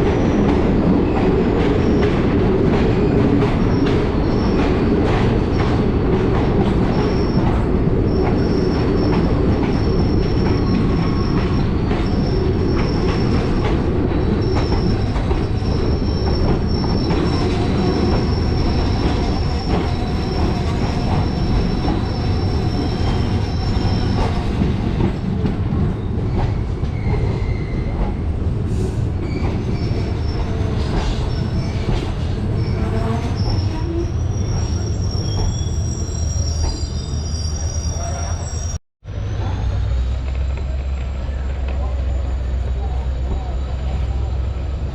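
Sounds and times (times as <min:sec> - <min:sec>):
train rumbling on track: 0:00.0 - 0:44.9
high wheel squeal: 0:14.2 - 0:24.5, 0:26.0 - 0:28.0, 0:29.2 - 0:44.6.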